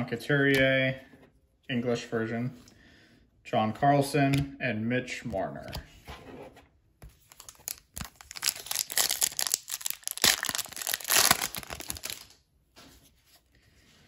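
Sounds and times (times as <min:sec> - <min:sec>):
foil wrapper crinkling: 0:07.3 - 0:12.4.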